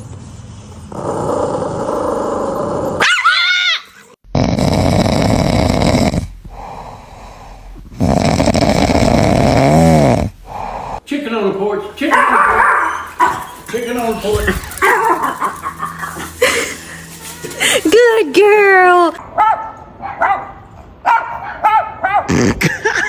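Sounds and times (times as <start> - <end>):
dog growling: 0.9 - 3.1, 7.8 - 11.0
dog whining: 12.3 - 13.7.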